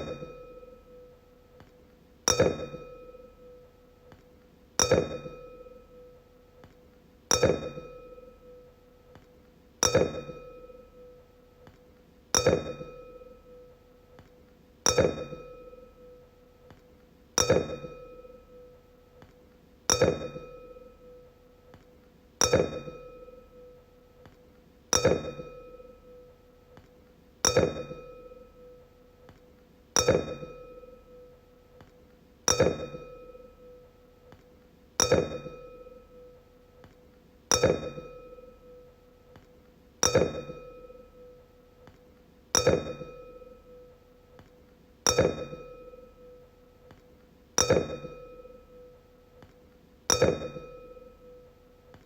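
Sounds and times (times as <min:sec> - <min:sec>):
wine glass ringing taps: 0:27.5 - 0:28.5, 0:30.0 - 0:31.0, 0:32.5 - 0:33.6, 0:35.0 - 0:36.0, 0:37.5 - 0:38.7, 0:45.1 - 0:46.2.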